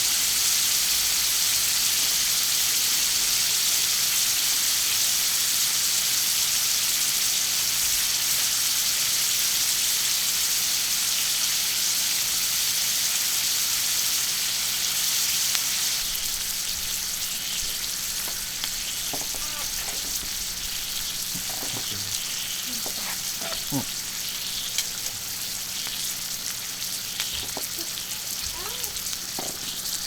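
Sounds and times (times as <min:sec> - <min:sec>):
food sizzling on a griddle: 0:00.0 - 0:30.0.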